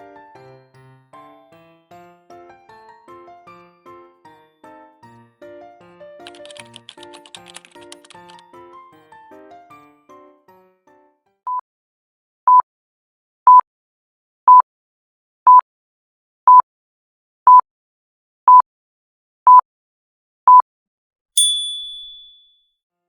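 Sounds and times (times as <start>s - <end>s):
bell-like ding: 21.4s - 22.6s.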